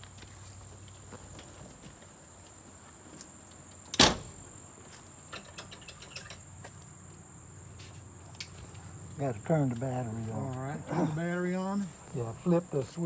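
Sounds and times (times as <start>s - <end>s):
crickets droning: 0.0s - 13.0s
car door shutting: 4.0s - 4.5s
light clicks and knocks: 5.3s - 6.5s.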